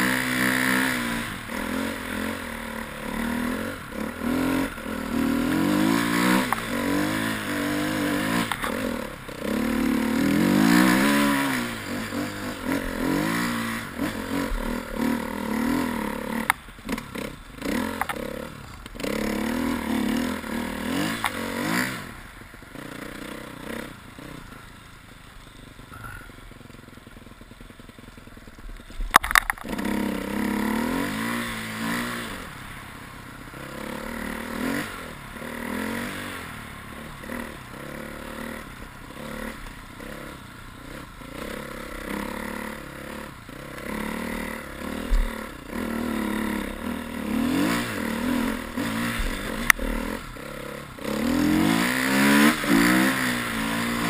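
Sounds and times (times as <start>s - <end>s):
motorcycle engine revving: 0.0s - 54.0s
sharp clack: 29.1s - 29.8s.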